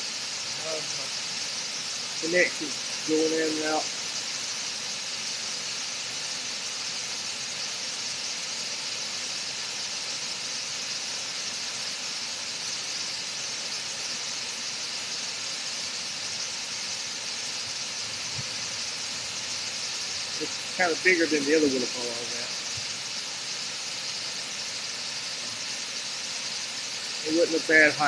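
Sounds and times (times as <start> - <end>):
waterfall rushing: 26.8 - 28.0.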